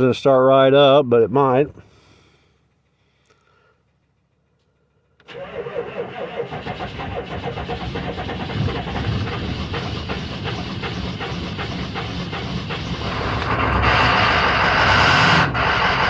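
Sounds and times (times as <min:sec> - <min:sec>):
diesel engine running: 0:01.7 - 0:16.0
starter motor cranking: 0:05.2 - 0:16.0.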